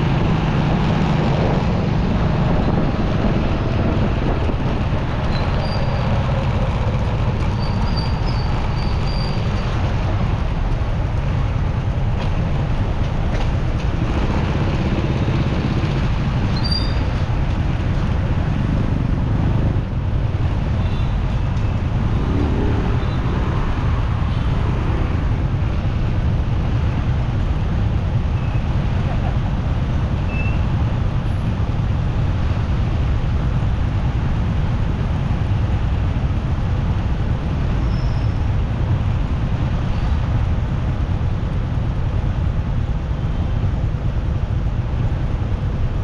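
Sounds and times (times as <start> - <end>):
traffic and road noise: 0.0 - 46.0
wind rumbling on microphone: 0.0 - 46.0.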